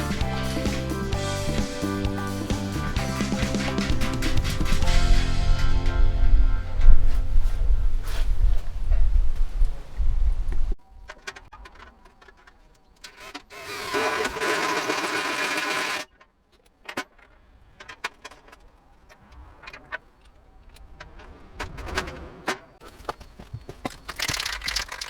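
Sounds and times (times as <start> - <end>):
small electric power tool running: 13.6 - 16.0
handling clicks and knocks: 16.5 - 25.0.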